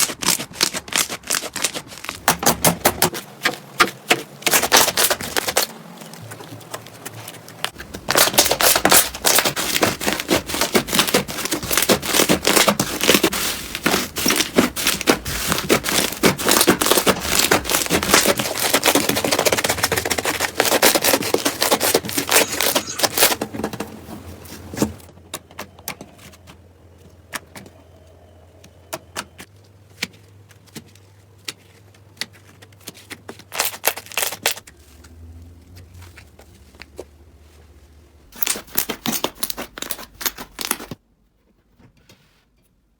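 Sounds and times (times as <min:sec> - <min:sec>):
slime crackling and popping: 0:33.5 - 0:34.7.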